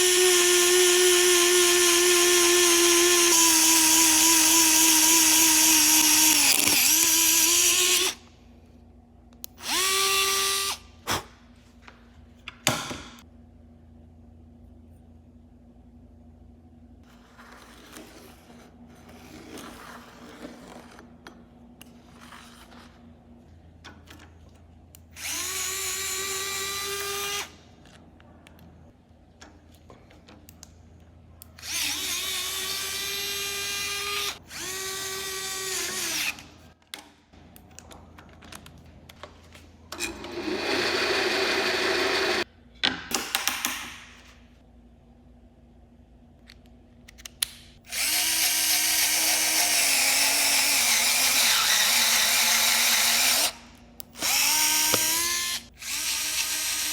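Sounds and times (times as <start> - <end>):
electric screwdriver whining: 54.1 - 56.9.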